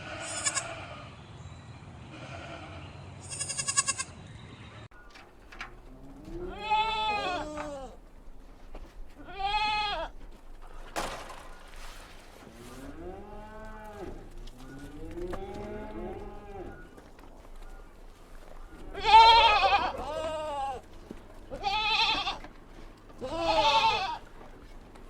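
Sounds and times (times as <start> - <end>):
goat kids bleating: 0.0 - 1.1, 2.1 - 4.2, 5.7 - 10.4, 12.9 - 24.5.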